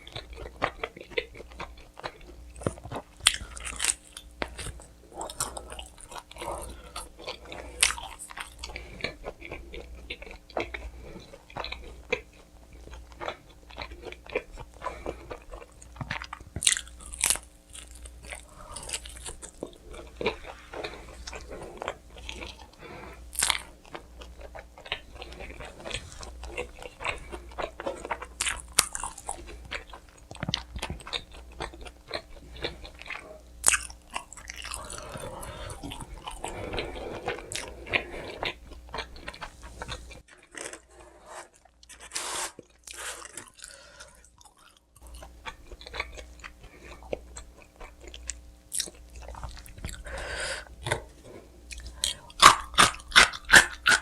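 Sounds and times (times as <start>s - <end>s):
chewing: 0.0s - 54.0s
crunchy bites: 12.9s - 22.7s.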